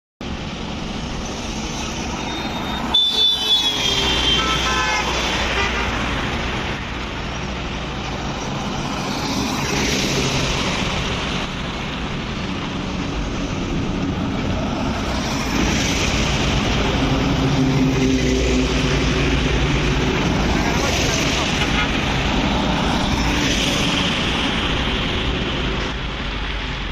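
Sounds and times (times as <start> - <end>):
road traffic noise: 0.2 - 26.9
truck engines running: 0.2 - 26.9
vehicle horn tooting: 2.2 - 6.0.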